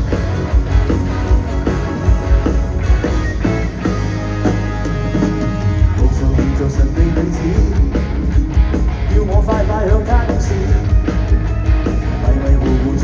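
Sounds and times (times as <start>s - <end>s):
wavering lead melody: 0.0s - 6.2s
rock band playing live: 0.0s - 13.0s.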